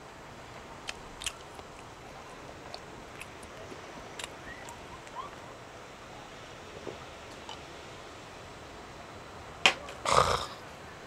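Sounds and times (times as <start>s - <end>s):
steady background hiss: 0.0s - 11.0s
mouth clicks and smacks: 0.8s - 1.9s, 2.6s - 5.2s
person chewing food: 0.8s - 5.2s.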